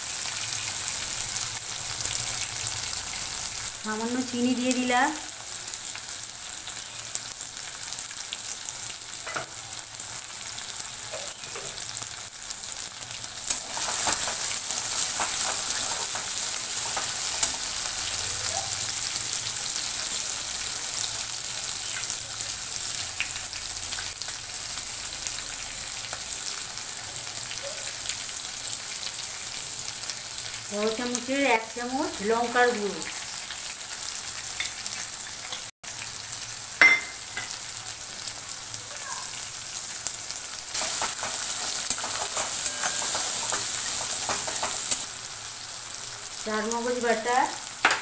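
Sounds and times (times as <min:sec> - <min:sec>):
food sizzling in hot oil: 0:00.0 - 0:48.0
metal spatula scraping pan: 0:40.8 - 0:45.0.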